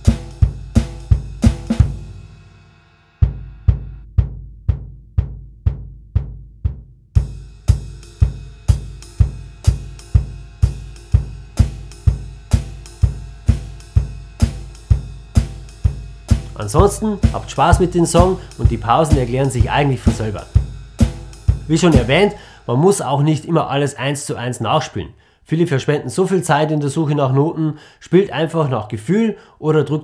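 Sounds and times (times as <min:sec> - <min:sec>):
drum kit playing a jive groove: 0:00.0 - 0:02.6, 0:03.2 - 0:23.4.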